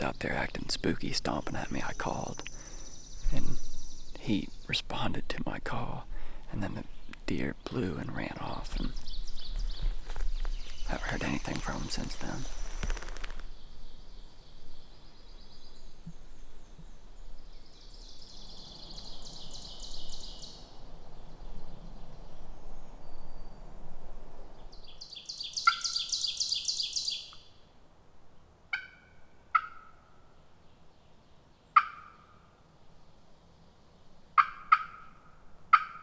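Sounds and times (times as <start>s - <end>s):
sharp bird calls: 0.0s - 5.1s, 6.5s - 13.8s, 24.8s - 27.5s
bird trills: 24.9s - 27.5s.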